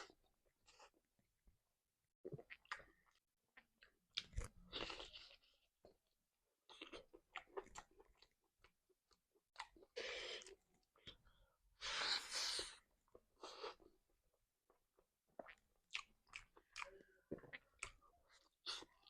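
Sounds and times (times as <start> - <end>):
person crunching and chewing food: 2.3 - 5.7, 6.7 - 11.1, 15.4 - 19.0.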